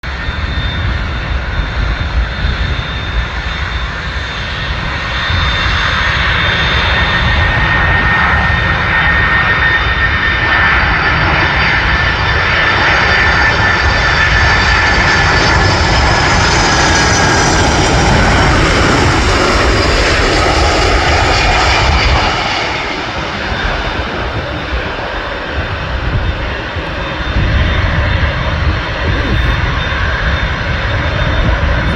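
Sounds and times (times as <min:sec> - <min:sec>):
jet airliner passing overhead: 0:00.0 - 0:31.9.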